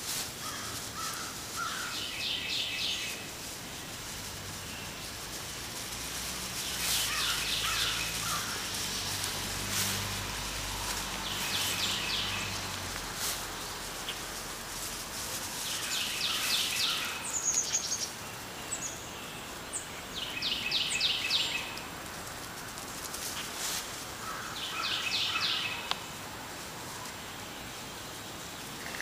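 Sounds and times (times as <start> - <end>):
outdoor background noise: 0.0 - 29.0
songbird singing: 0.4 - 29.0.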